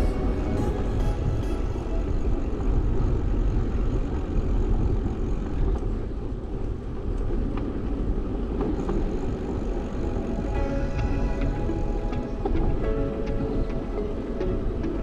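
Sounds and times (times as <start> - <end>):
wind and road rumble: 0.0 - 15.0.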